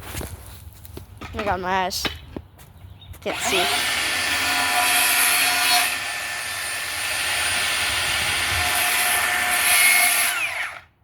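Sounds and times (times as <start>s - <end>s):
power tool motor whining: 3.3s - 11.0s.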